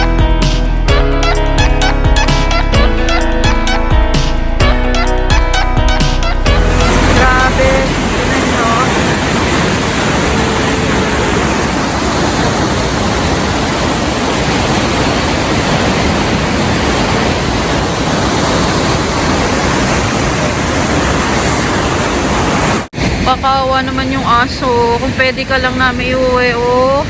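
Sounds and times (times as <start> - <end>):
fast-flowing river water rushing: 6.2 - 27.0.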